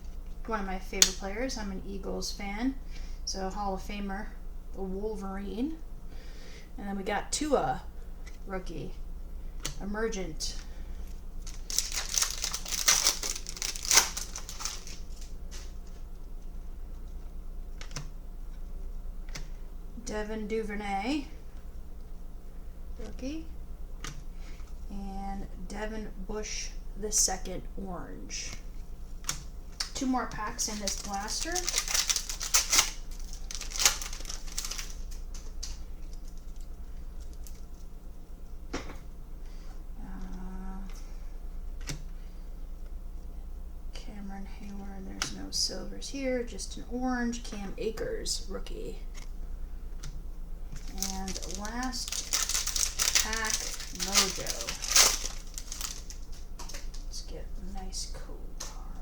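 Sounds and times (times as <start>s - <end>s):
low steady hum: 0.0s - 59.0s
cards clicking and rustling: 11.4s - 15.7s, 29.2s - 37.7s, 50.8s - 57.1s
plastic wrapper crinkling: 11.4s - 16.0s, 29.7s - 37.8s, 50.8s - 57.2s.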